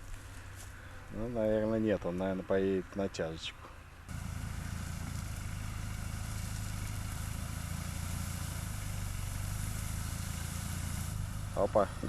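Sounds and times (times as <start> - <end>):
engine running at low revs: 4.1 - 12.0.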